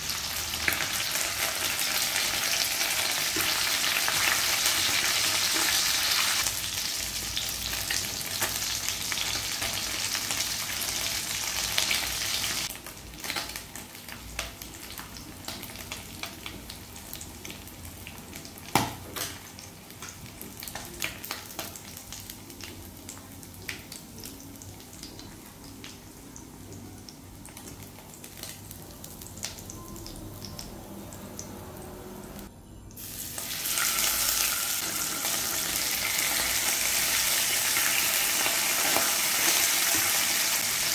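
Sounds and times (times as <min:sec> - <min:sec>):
fish frying in hot oil: 0:00.0 - 0:23.2, 0:33.0 - 0:40.9.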